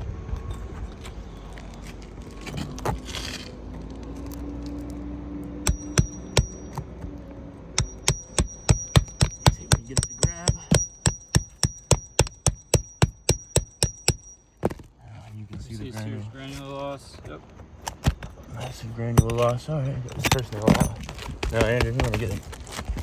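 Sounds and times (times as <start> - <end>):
hammer striking metal nail puller: 5.6 - 6.8, 7.8 - 14.4.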